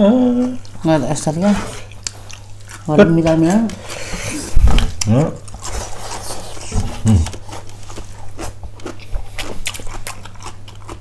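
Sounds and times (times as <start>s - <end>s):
steady low hum: 0.0s - 11.0s
wet chewing mouth clicks: 5.0s - 11.0s
short low vocal sound: 6.9s - 7.4s.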